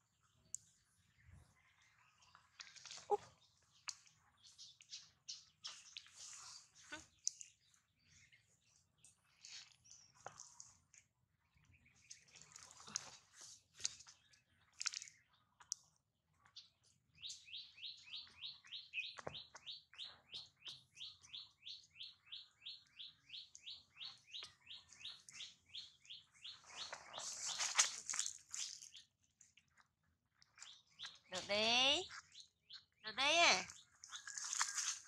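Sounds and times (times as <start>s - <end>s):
bird chirping: 16.4s - 29.1s, 30.4s - 35.0s.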